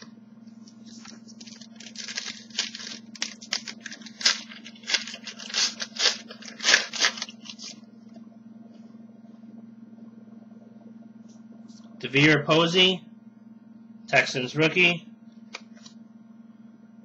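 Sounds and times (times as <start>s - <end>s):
wrapper tearing and crinkling: 0.9s - 7.8s.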